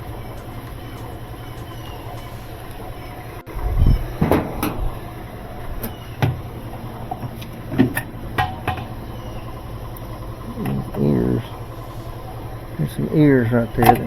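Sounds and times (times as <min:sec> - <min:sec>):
steady low hum: 0:00.0 - 0:14.0
washer parts knocking: 0:03.4 - 0:14.0.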